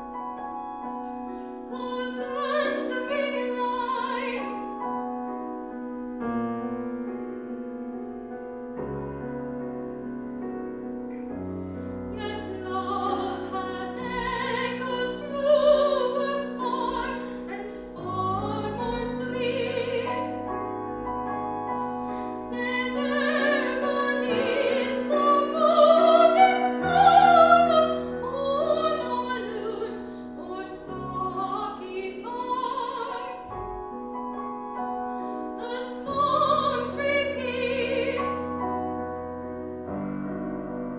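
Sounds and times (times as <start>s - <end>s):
piano chords: 0.0s - 40.9s
classical singer with vibrato: 1.2s - 5.0s, 11.9s - 39.2s.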